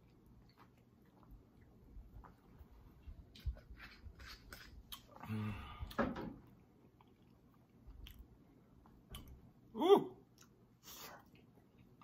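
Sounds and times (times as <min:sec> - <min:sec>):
mouth clicks and smacks chewing: 0:00.0 - 0:05.2, 0:06.5 - 0:09.5.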